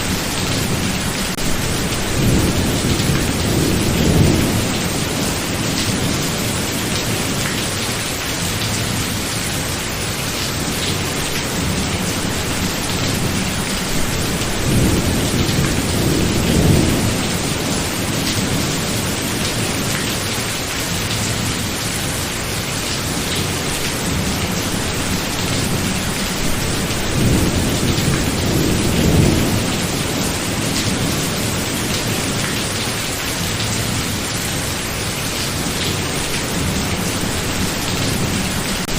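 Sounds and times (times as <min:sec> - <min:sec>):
thunder rumbling: 0:00.0 - 0:07.4, 0:11.1 - 0:19.9, 0:23.1 - 0:32.5
heavy rain: 0:00.0 - 0:38.9.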